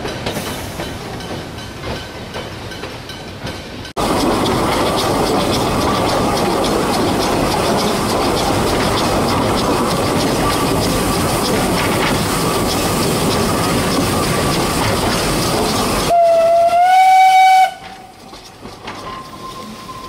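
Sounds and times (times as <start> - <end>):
steam locomotive running: 0.0 - 20.0
wheels clicking over rail joints: 0.0 - 20.0
hiss of steam: 0.2 - 1.1, 4.0 - 16.1.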